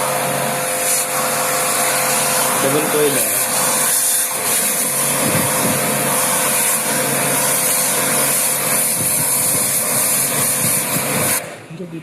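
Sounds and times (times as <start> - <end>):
pressure washer motor hum: 0.0 - 12.0
pressure washer water jet hissing: 0.0 - 12.0.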